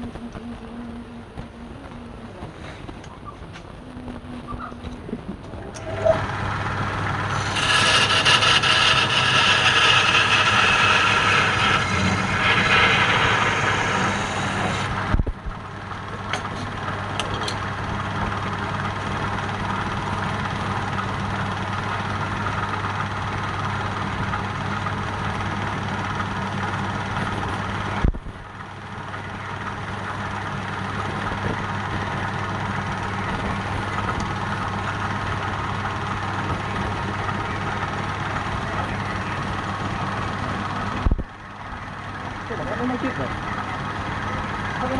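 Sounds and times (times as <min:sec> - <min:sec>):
lathe motor hum: 0:03.7 - 0:44.9
tool cutting spinning wood: 0:05.6 - 0:17.7.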